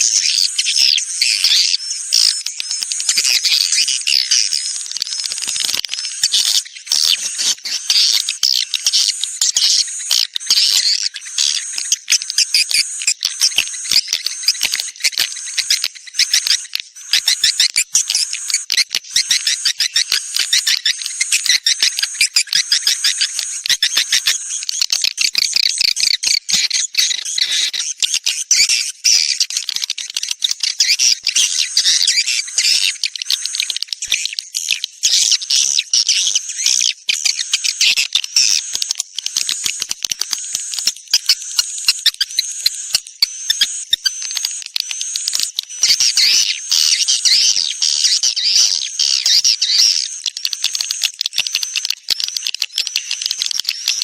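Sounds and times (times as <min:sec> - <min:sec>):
birds twittering and chirping: 0:00.0 - 0:54.0
sharp clicks: 0:38.4 - 0:46.2.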